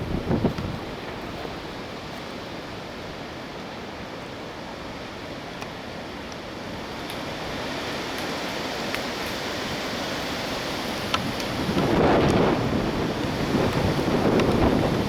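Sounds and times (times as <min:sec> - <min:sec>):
strong wind rushing: 0:00.0 - 0:01.4, 0:10.8 - 0:15.0
wind buffeting rumble: 0:00.0 - 0:02.0, 0:09.4 - 0:15.0.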